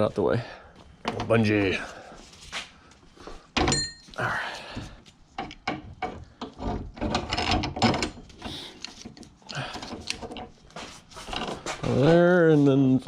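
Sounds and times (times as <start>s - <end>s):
clicks knocks and rattles: 5.3s - 10.6s.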